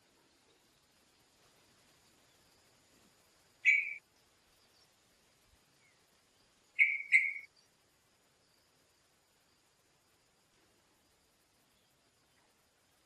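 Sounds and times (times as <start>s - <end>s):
bird calls: 3.6s - 5.0s, 6.7s - 7.7s.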